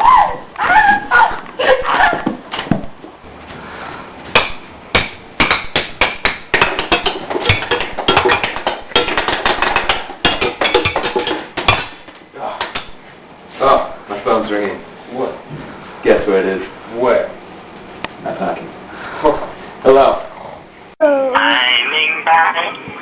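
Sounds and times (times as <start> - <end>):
sharp knocks and bangs: 4.3 - 13.0.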